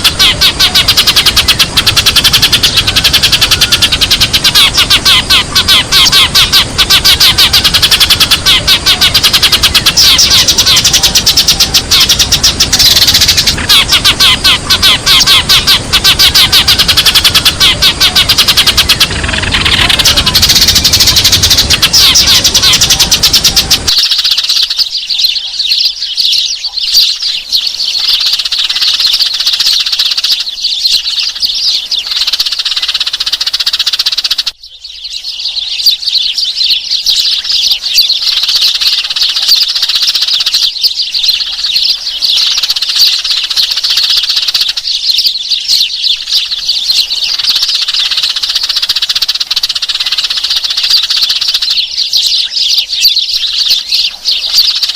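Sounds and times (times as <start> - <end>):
low noise: 0.0 - 25.4
sparrows chirping: 0.0 - 54.9.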